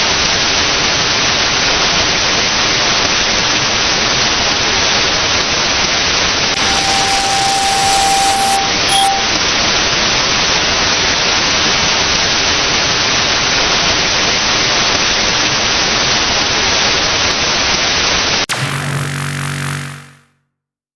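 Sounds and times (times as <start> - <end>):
loud static hiss: 6.6 - 9.3
steady beep: 6.6 - 9.4, 18.5 - 20.3.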